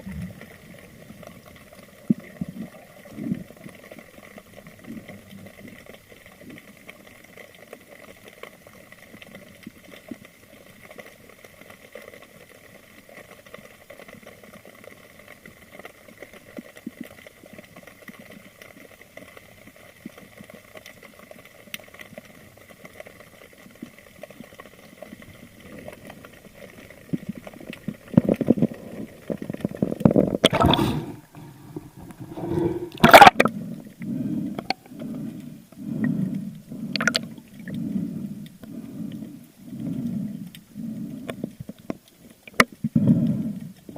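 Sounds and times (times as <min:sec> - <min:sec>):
faint ticks: 0:00.2 - 0:30.5, 0:33.4 - 0:43.9
bubbling and rushing water: 0:22.2 - 0:43.9
underwater hiss: 0:30.4 - 0:41.7.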